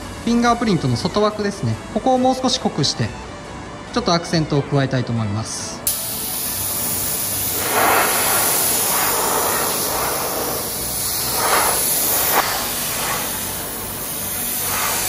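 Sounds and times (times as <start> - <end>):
paint spray gun hissing: 5.9 - 15.0.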